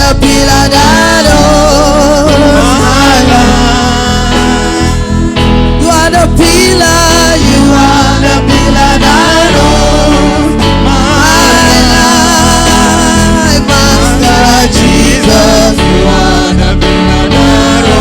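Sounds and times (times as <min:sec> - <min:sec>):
gospel singing with instruments: 0:00.0 - 0:18.0.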